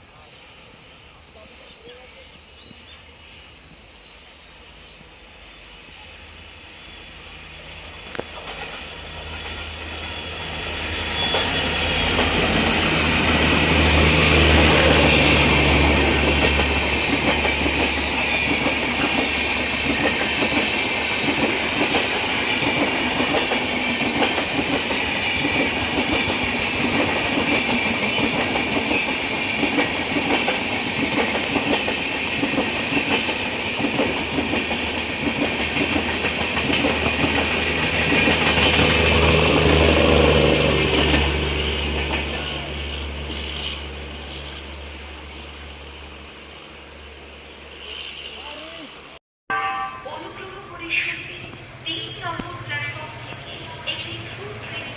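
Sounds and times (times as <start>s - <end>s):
diesel locomotive engine drone: 0.0s - 54.9s
train wheels rolling: 7.0s - 44.4s
wheels clacking over rail joints: 11.2s - 43.4s.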